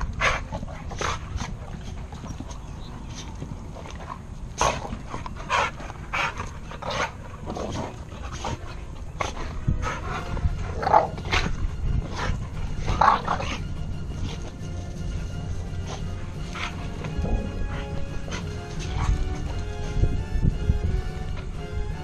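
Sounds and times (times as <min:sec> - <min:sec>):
dogs growling and barking: 0:00.0 - 0:22.0
steady low rumble: 0:00.0 - 0:22.0.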